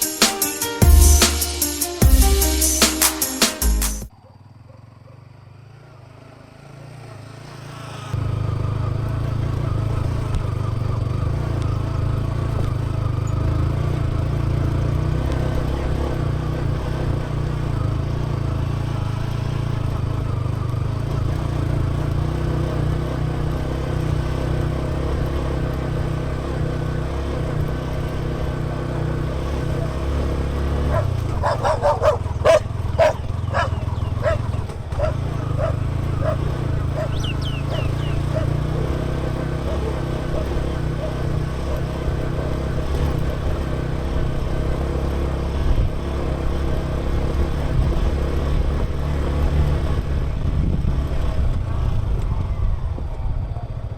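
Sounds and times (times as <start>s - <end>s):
motorcycle engine running: 4.0s - 53.9s
dog barking: 29.6s - 42.8s.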